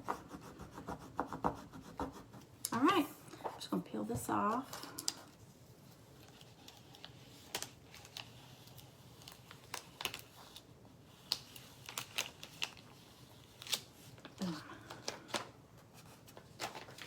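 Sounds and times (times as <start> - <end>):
vinyl peeling crackles: 4.9 - 17.0.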